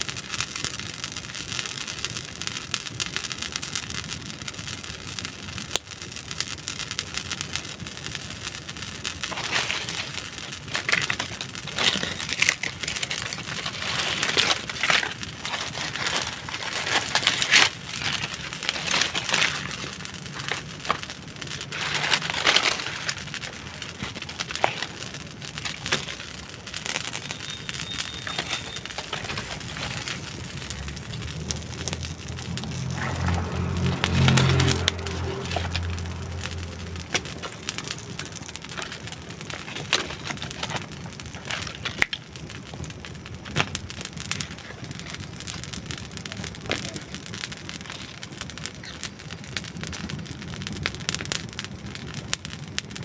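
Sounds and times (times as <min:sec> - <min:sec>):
campfire crackling and popping: 0:00.0 - 0:53.0.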